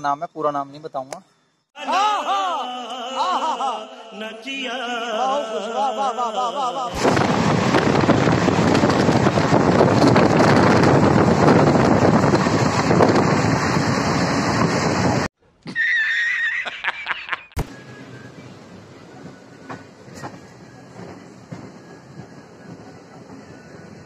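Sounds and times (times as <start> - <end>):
train wheels and wind rushing: 7.0 - 15.3, 17.6 - 24.0.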